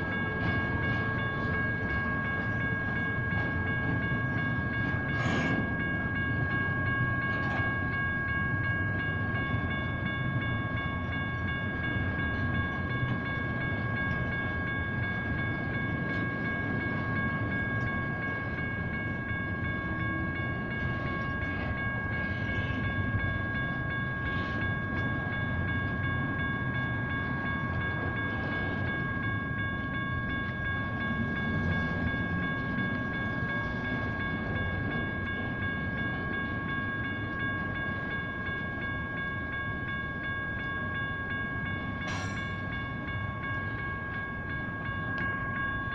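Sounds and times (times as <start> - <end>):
train car clank: 0.0 - 23.7, 40.6 - 45.9
crossing bells ringing: 0.0 - 45.9
freight train rumbling past: 0.0 - 45.9.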